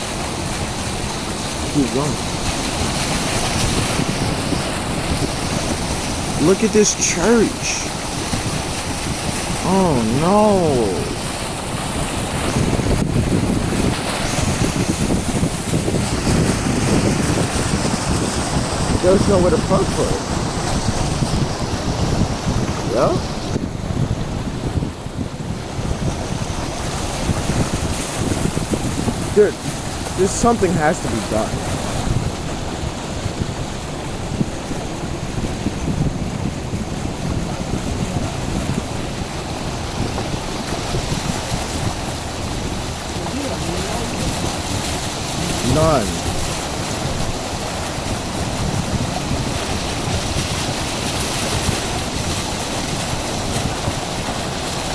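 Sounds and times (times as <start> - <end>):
floodwater sloshing around car: 0.0 - 54.9.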